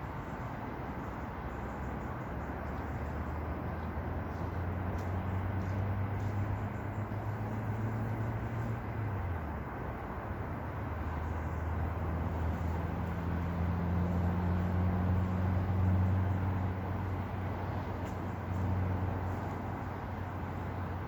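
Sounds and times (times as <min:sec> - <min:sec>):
constant rushing noise: 0:00.0 - 0:21.0.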